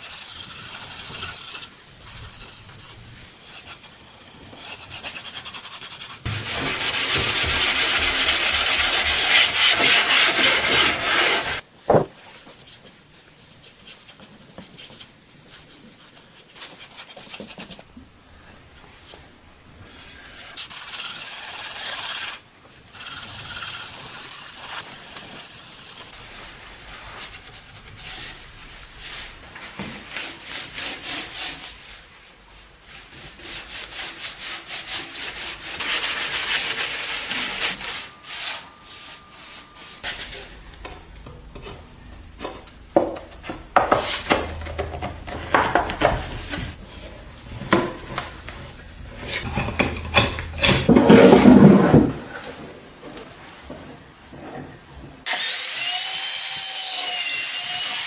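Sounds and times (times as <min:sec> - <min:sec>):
knocks and clatters: 0:47.5 - 0:52.2.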